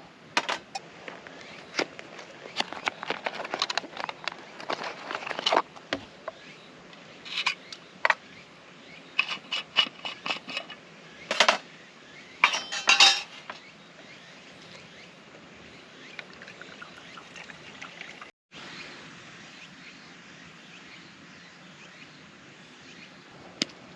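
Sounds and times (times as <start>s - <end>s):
metal cookware clinking: 12.4s - 13.6s.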